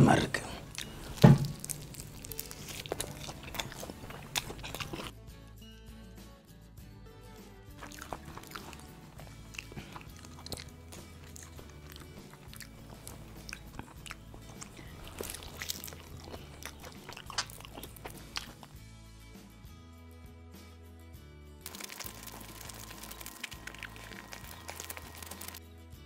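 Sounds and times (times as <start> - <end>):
quiet background music: 0.0 - 26.0
person crunching fried chicken: 0.6 - 5.1, 7.8 - 18.8, 21.6 - 25.6.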